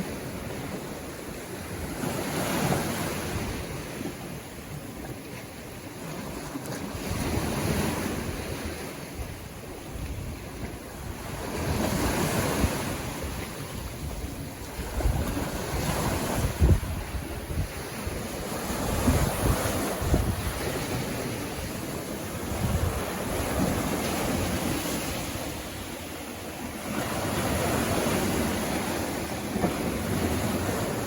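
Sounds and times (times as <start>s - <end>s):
sea waves breaking on beach: 0.0s - 31.0s
wind rumbling on microphone: 6.2s - 31.0s.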